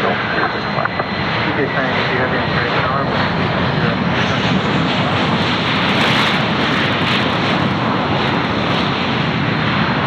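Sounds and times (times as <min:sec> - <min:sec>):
jet engine rushing: 0:00.0 - 0:10.0.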